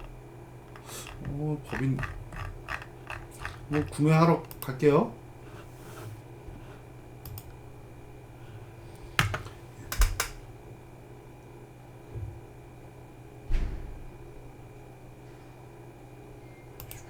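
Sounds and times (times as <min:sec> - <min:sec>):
steady low hum: 0:00.0 - 0:17.0
computer clicks and taps: 0:09.2 - 0:10.4.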